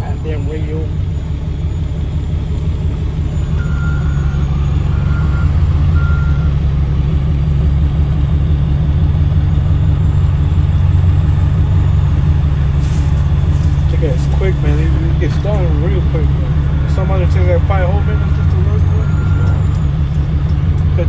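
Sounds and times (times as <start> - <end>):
truck diesel engine droning: 0.0 - 21.0
reversing alarm beeps: 3.1 - 8.4, 9.9 - 21.0.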